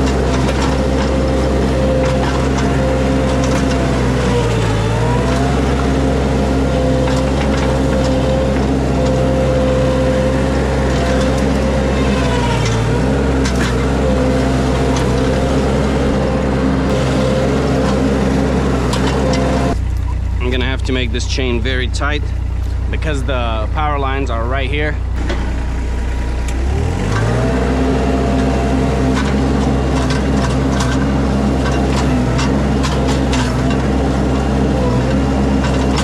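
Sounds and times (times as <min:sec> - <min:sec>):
skid steer engine running: 0:00.0 - 0:36.0.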